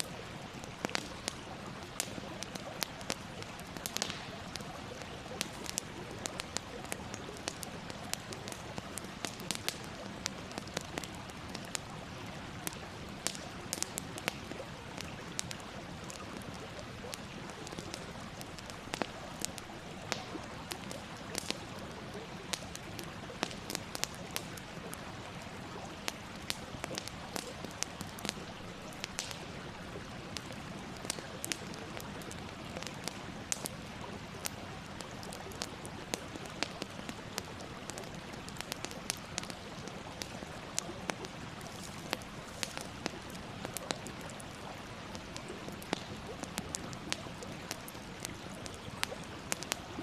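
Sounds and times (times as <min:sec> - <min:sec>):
wood fire crackling and popping: 0:00.0 - 0:50.0.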